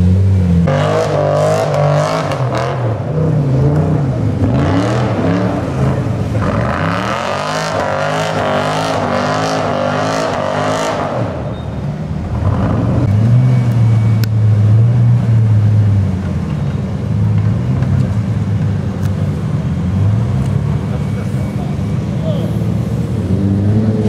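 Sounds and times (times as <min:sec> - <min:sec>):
off-road vehicle engine revving: 0:00.0 - 0:11.5, 0:19.7 - 0:24.0.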